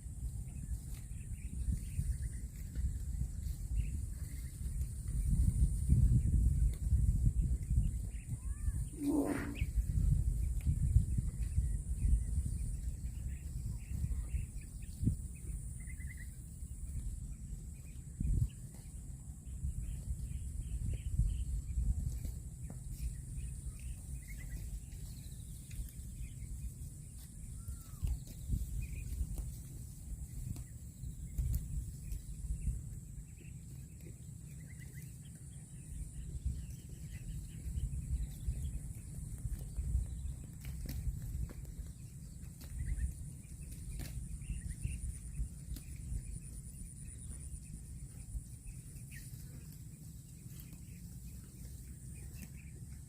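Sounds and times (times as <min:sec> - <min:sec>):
small birds chirping: 0:00.0 - 0:53.0
steady low rumble: 0:00.0 - 0:53.0
faint bird chirps: 0:07.2 - 0:19.0, 0:19.6 - 0:29.3
high-pitched whine: 0:08.6 - 0:10.0.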